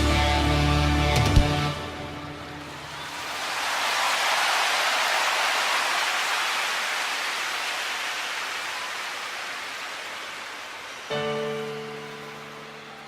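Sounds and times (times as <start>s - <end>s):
heavy rain hissing: 3.2s - 11.6s.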